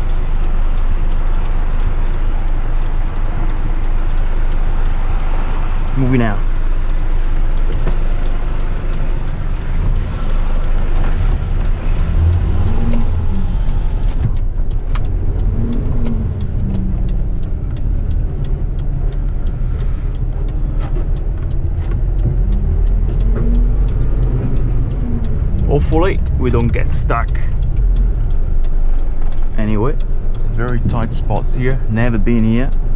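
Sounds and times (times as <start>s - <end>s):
truck diesel engine revving: 0.0s - 32.9s.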